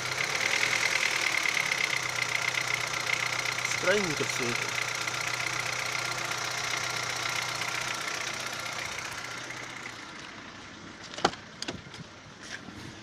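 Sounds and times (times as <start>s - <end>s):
knocking car engine: 0.0s - 10.7s.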